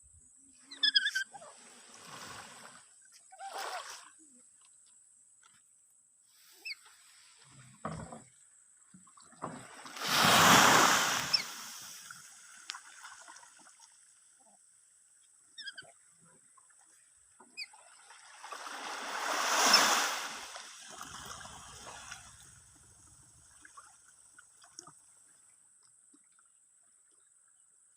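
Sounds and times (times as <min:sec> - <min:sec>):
faint bird chirps: 0:00.1 - 0:01.5, 0:06.5 - 0:06.9, 0:15.5 - 0:16.0
sea waves breaking on shore: 0:09.6 - 0:13.3, 0:17.9 - 0:23.0.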